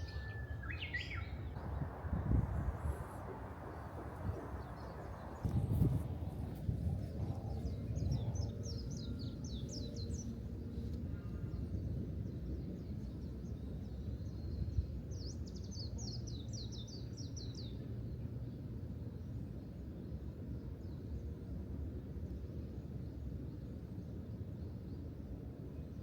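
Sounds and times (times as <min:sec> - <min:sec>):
songbird chirping: 0:00.0 - 0:11.7
steady low rumble: 0:01.2 - 0:13.4.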